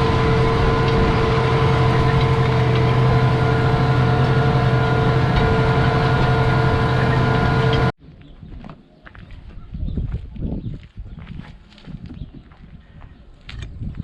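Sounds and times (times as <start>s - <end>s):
tractor diesel engine running: 0.0s - 8.0s.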